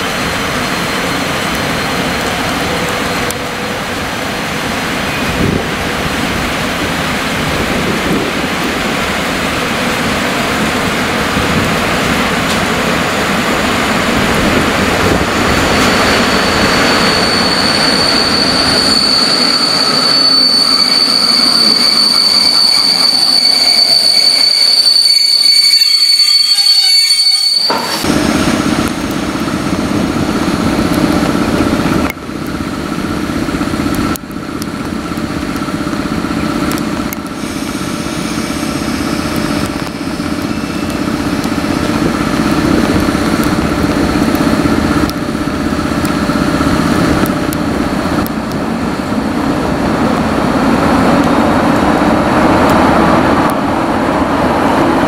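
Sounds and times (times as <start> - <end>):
train wheels and brakes squealing: 0.0 - 28.6, 37.2 - 44.7
electric locomotive hum: 0.0 - 55.0
train rolling noise: 0.0 - 55.0.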